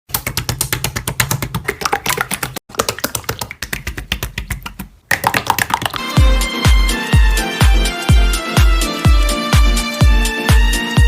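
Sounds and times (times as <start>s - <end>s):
slime clicking and popping: 1.5s - 6.0s.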